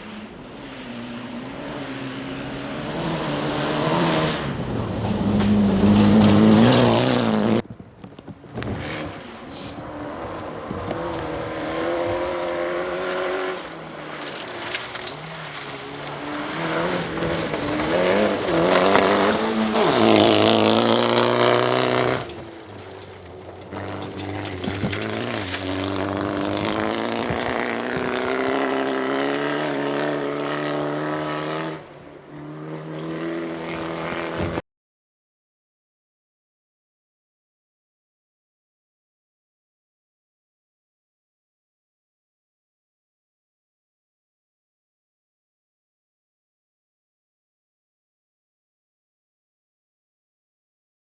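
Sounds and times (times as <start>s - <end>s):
rally car engine revving: 0.0s - 34.6s.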